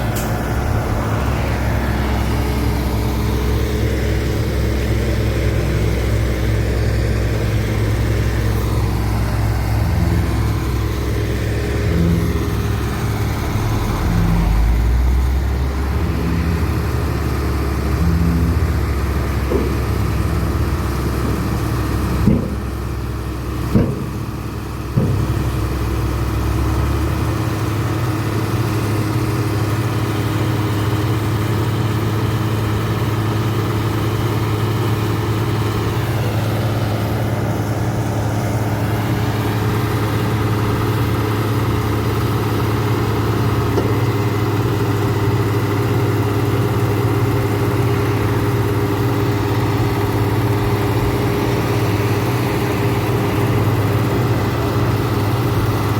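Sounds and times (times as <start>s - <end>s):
heavy machine engine humming: 0.0s - 55.9s.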